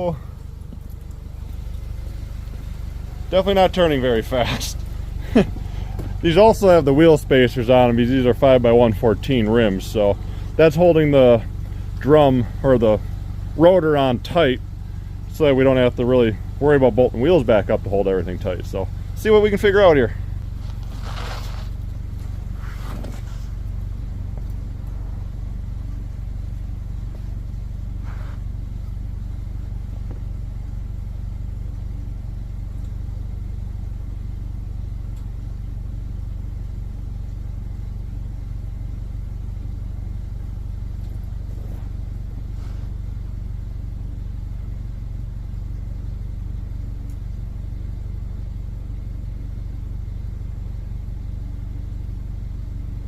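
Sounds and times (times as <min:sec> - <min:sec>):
wheel bearings noise: 0:00.0 - 0:48.3
car drivetrain rumble: 0:00.0 - 0:53.0.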